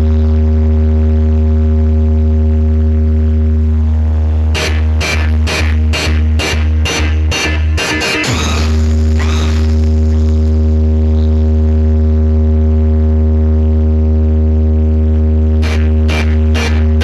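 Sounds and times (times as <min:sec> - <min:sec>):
deep bass tone: 0:00.0 - 0:17.0
drum hits: 0:04.6 - 0:10.4.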